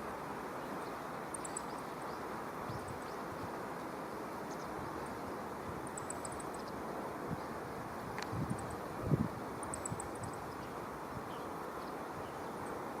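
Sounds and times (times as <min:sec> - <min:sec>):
rushing outdoor ambient noise: 0:00.0 - 0:13.0
small birds chirping: 0:00.6 - 0:05.2, 0:05.8 - 0:07.8, 0:09.6 - 0:12.9.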